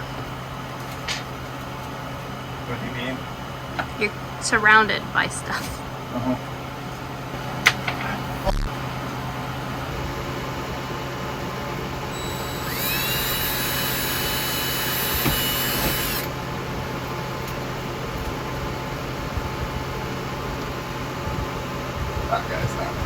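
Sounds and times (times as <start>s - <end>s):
power drill whining: 12.1s - 16.4s.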